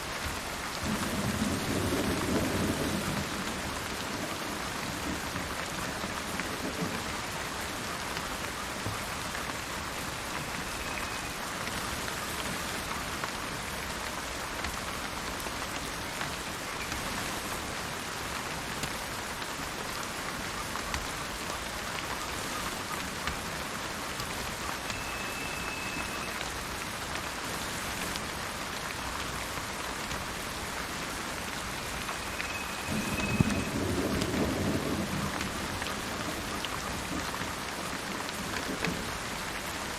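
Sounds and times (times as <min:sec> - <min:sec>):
steady rain falling: 0:00.0 - 0:39.9
low rumble of thunder: 0:00.8 - 0:07.6, 0:32.8 - 0:37.6.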